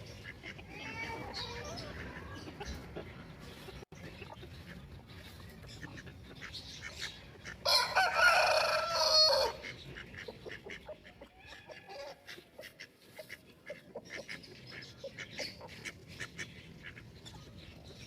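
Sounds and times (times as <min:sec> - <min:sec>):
chickens chirping and clucking: 0:00.0 - 0:18.0
rooster crowing: 0:07.7 - 0:09.6.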